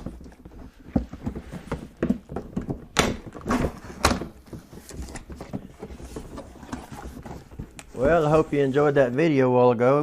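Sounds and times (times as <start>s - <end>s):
cardboard box thumps and knocks: 0.9s - 8.3s.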